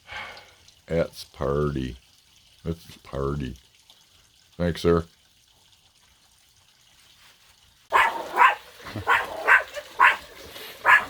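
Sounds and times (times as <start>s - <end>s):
water gushing and splashing: 5.3s - 11.0s
dog barking: 7.9s - 11.0s.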